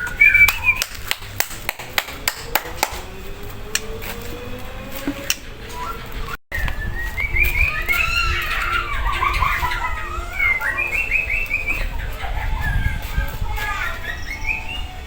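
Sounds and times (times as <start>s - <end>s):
bird singing rapid varied notes: 6.8s - 12.2s, 13.7s - 15.0s.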